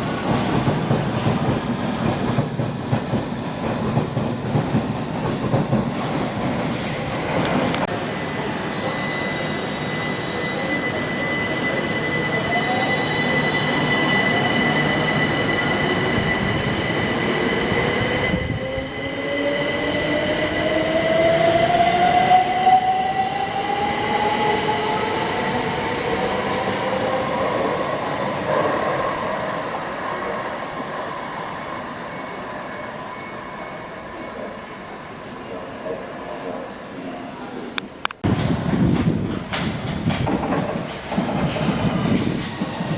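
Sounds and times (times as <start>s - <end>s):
train high whine: 7.4s - 34.9s.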